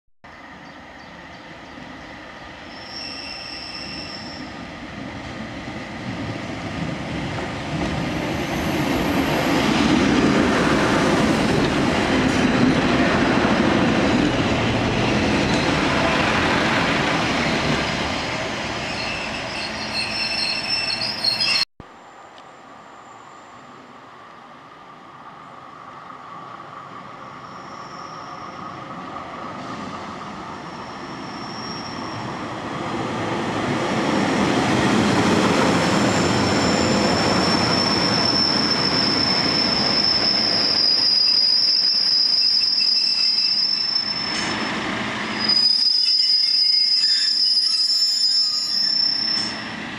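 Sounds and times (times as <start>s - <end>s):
diesel train passing: 0.3s - 49.9s
metallic wheel squeal: 2.7s - 4.6s, 18.8s - 21.6s, 36.1s - 44.7s, 45.4s - 49.7s.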